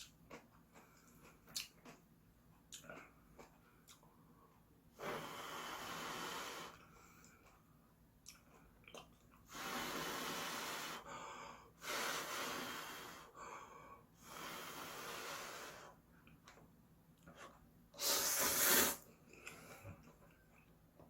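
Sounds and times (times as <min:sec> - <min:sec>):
person blowing air through lips: 0:09.5 - 0:11.1, 0:11.8 - 0:13.3, 0:18.0 - 0:19.0.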